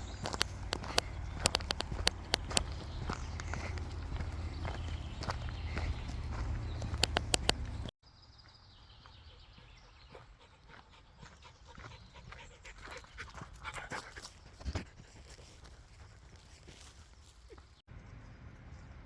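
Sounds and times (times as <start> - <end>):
sharp clicks: 0.0 - 3.5, 6.8 - 7.9
footsteps on forest path: 0.0 - 17.8
dog panting: 9.6 - 16.7.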